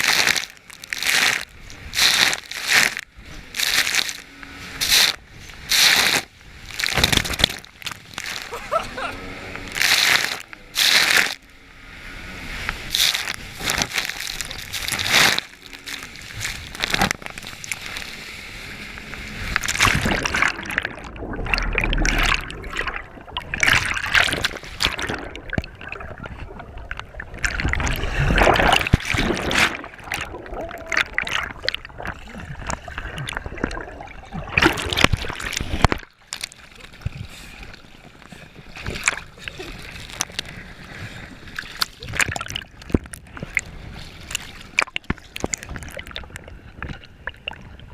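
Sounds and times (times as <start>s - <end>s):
water splashing around jet ski: 0.0s - 47.9s
low rumble: 2.9s - 35.2s.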